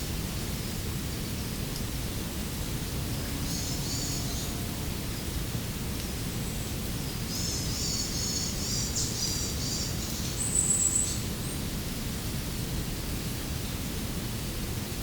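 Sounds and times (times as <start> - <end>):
small bird chirping: 3.5 - 4.6, 7.3 - 11.6.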